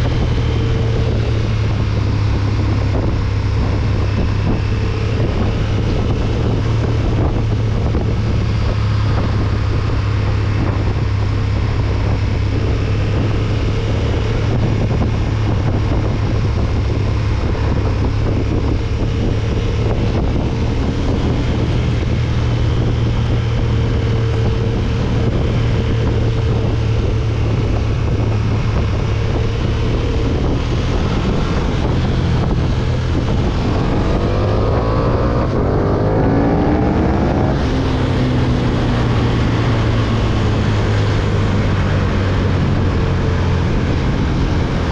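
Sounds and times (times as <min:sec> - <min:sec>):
motorcycle engine running: 0:00.0 - 0:44.9
wind buffeting microphone: 0:00.0 - 0:44.9.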